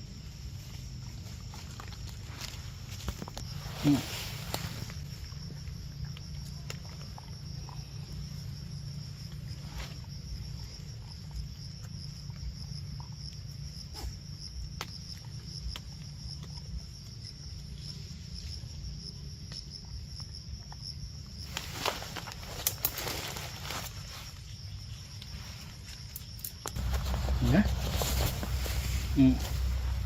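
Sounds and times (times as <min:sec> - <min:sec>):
insect chirring: 0:00.0 - 0:30.0
low background rumble: 0:26.6 - 0:30.0.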